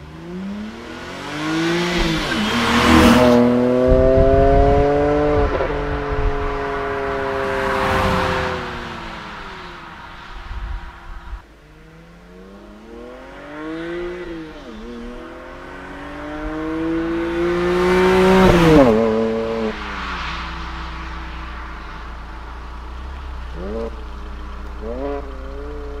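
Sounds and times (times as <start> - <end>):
car engine accelerating hard: 0.0 - 26.0
gear change: 16.2 - 26.0.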